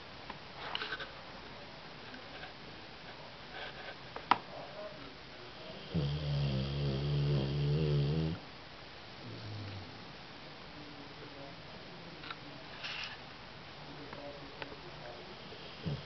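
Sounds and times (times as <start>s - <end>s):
dog snoring: 5.7s - 8.4s, 9.2s - 10.0s, 15.3s - 16.0s.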